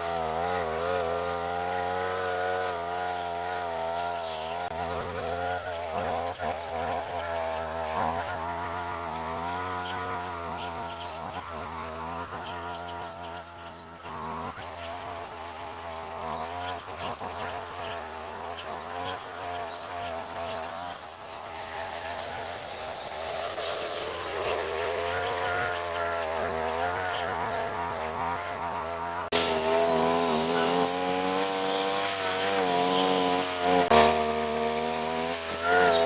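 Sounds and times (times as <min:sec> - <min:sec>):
brush cutter engine buzzing: 0:00.0 - 0:36.0.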